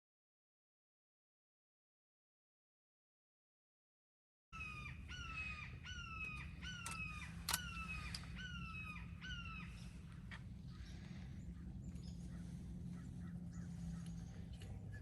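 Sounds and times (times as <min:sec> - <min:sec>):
crows cawing: 0:04.6 - 0:14.4
low rumble: 0:05.6 - 0:15.0.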